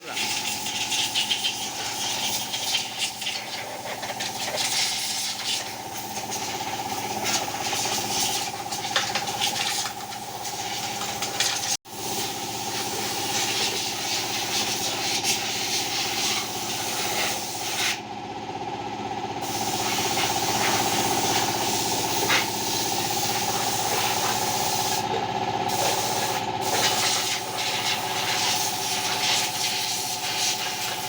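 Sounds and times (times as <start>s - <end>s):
motor running: 0.0s - 31.0s
hissing spray: 25.7s - 31.0s.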